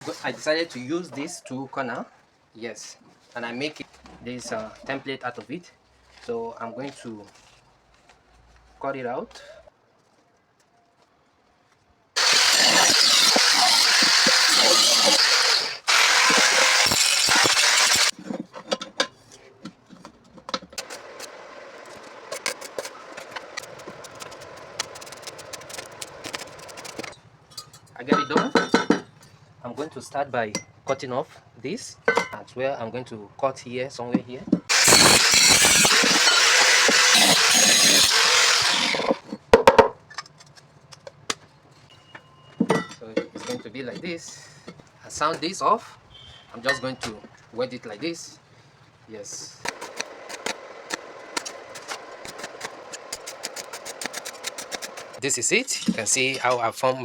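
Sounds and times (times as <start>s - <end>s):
angle grinder cutting steel pipe: 12.2s - 18.2s, 20.8s - 27.1s, 34.7s - 39.2s, 49.7s - 55.2s.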